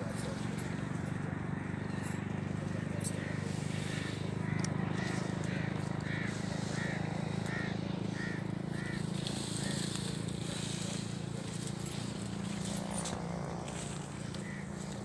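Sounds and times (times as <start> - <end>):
steady low hum: 0.0 - 15.0
bird calling: 2.7 - 11.2, 14.0 - 15.0.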